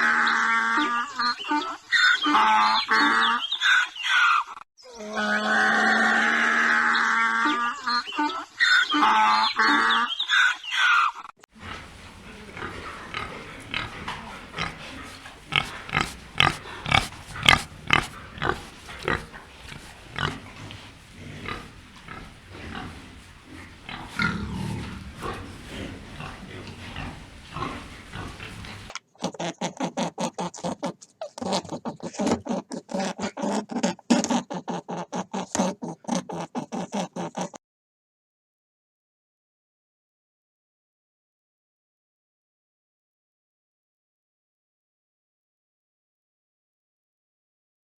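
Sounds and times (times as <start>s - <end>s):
pigs grunting: 11.6s - 37.6s.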